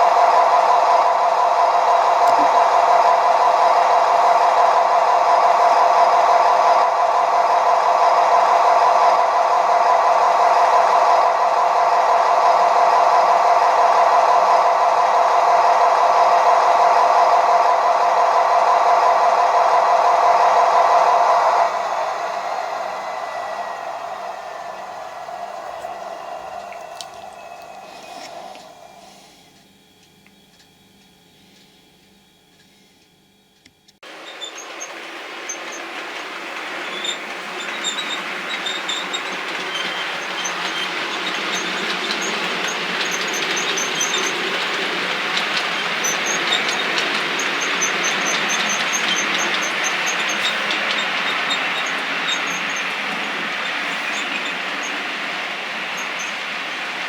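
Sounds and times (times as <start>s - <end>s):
model train whirring: 0.0s - 29.6s, 34.0s - 57.0s
model train motor whirring: 34.2s - 57.0s.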